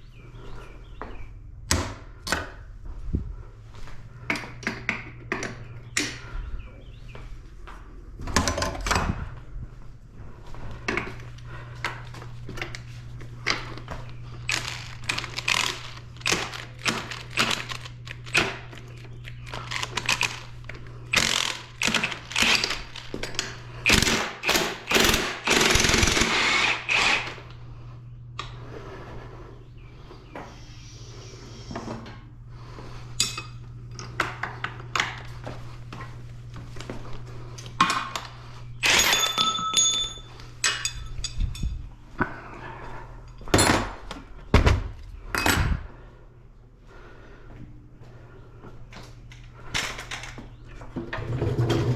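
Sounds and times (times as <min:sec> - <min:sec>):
steady low hum: 0:00.0 - 0:51.9
impact wrench hammering: 0:21.1 - 0:22.8, 0:23.8 - 0:27.3.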